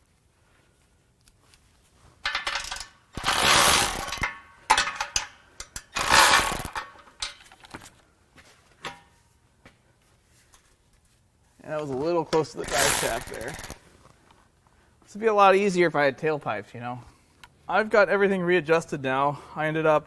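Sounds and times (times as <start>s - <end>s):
metal clicks: 2.3s - 7.8s, 12.6s - 13.8s
ratchet wrench clicking: 2.4s - 4.3s, 5.9s - 6.9s, 12.6s - 13.8s.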